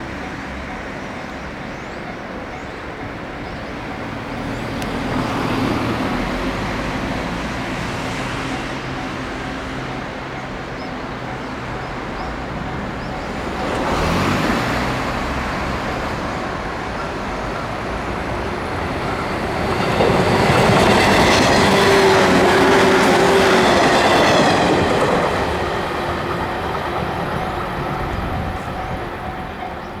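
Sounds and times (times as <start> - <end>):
train hum: 0.0 - 30.0
train wheels clattering: 11.2 - 30.0.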